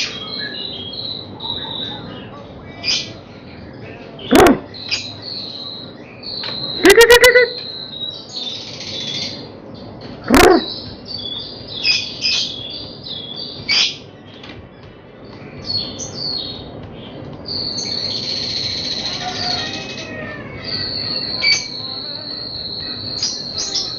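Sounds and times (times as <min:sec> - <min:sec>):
birds chirping and whistling: 0:00.0 - 0:23.9
fast rattling bird call: 0:17.6 - 0:21.8.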